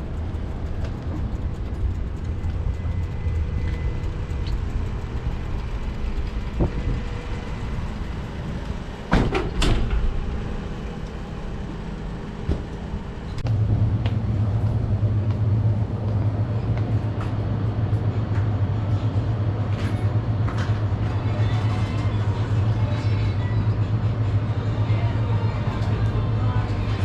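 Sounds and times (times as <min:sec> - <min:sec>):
bicycle riding rumble: 0:00.0 - 0:27.0.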